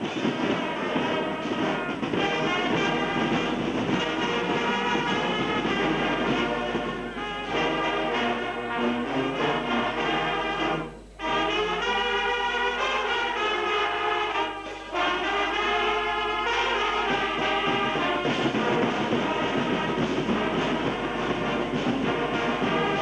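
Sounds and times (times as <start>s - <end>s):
brass band playing held notes: 0.0s - 23.0s.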